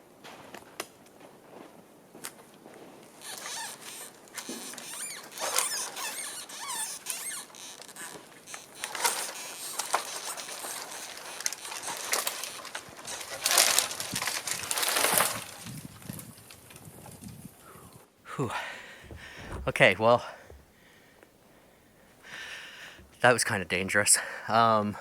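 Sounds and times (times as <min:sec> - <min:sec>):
tree creaking and squealing: 0:03.1 - 0:15.6, 0:18.8 - 0:21.2
wood cracking: 0:03.2 - 0:15.6, 0:18.9 - 0:21.0.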